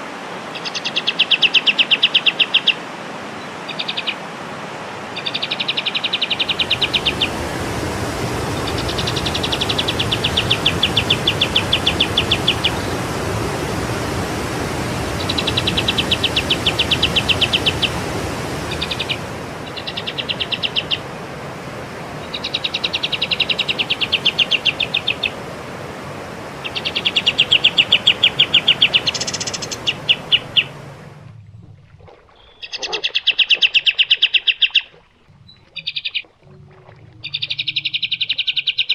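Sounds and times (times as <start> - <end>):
songbird trilling: 8.6 - 13.0, 15.1 - 18.0, 18.7 - 21.0, 22.2 - 25.4, 26.6 - 30.8, 37.2 - 38.9.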